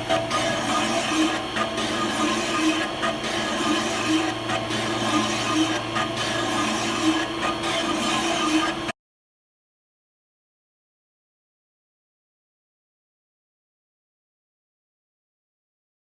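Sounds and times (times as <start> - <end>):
lathe tool rasping on metal: 0.0 - 8.9
metal lathe humming: 0.0 - 8.9.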